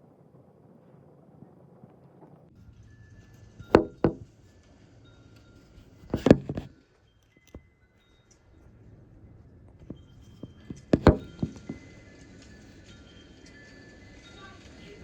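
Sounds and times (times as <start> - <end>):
sharp knocks: 3.7 - 4.3, 6.2 - 6.7, 10.5 - 11.8.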